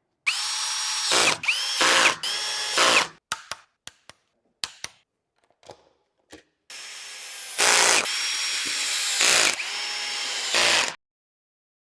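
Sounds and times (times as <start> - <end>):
power tool whirring: 0.3 - 3.2, 6.7 - 11.0.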